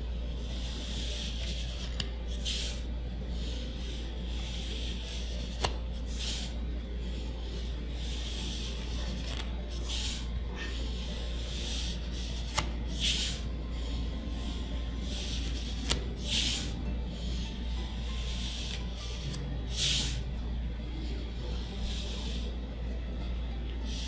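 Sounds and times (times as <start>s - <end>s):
steady low hum: 0.0s - 24.0s
cards sliding off a stack: 0.9s - 2.8s, 4.4s - 6.5s, 8.0s - 10.4s, 11.4s - 13.4s, 15.0s - 17.4s, 18.2s - 20.2s.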